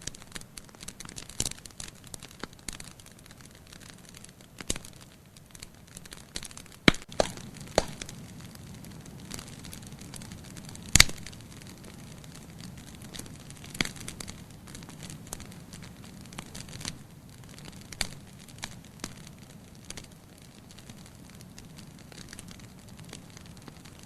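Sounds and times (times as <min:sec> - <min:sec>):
wood fire crackling: 0:00.0 - 0:24.0
flames rushing: 0:00.1 - 0:24.0
loud pop of fire: 0:06.4 - 0:11.4.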